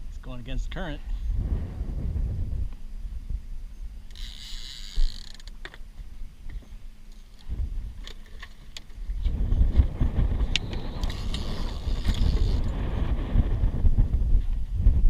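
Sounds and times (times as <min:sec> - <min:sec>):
wind rumbling on microphone: 0:00.0 - 0:15.0
fishing reel whirring and clicking: 0:04.0 - 0:05.8, 0:10.0 - 0:13.1.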